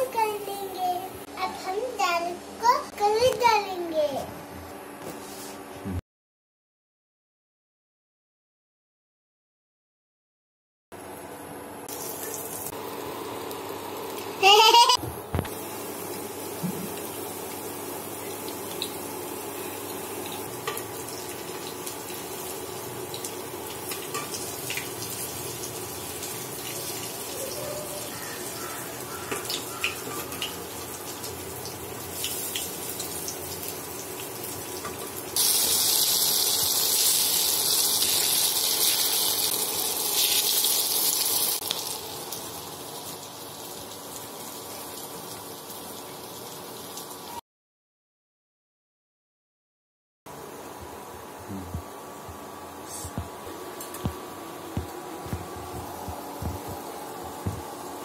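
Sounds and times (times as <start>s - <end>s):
fritters sizzling in hot oil: 15.4s - 47.4s.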